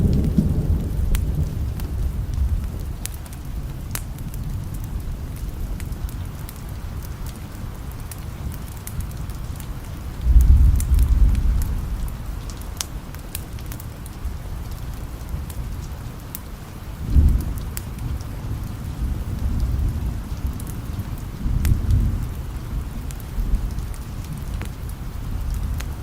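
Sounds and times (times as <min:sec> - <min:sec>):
distant thunder rolling: 0:00.0 - 0:06.4, 0:10.2 - 0:13.1, 0:17.0 - 0:26.0
rain hiss: 0:00.0 - 0:26.0.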